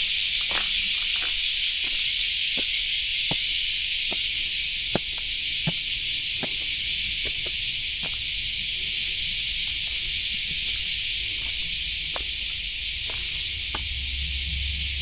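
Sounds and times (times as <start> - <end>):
insects chorus: 0.0 - 15.0
faint footsteps: 9.7 - 14.0.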